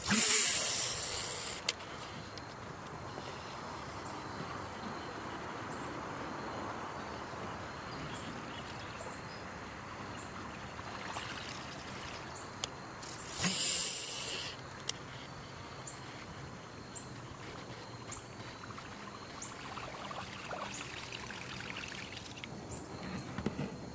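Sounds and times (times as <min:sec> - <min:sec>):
loud hiss: 0:00.0 - 0:01.7, 0:13.0 - 0:14.7
river water trickling: 0:07.8 - 0:14.4, 0:16.6 - 0:22.7.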